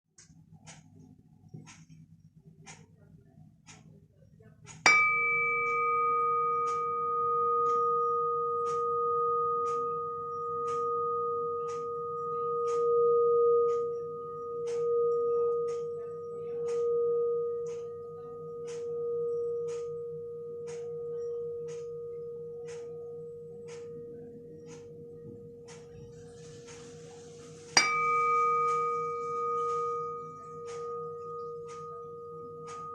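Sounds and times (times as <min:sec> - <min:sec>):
clock ticking: 0:03.6 - 0:03.9, 0:19.6 - 0:19.9, 0:23.6 - 0:32.9.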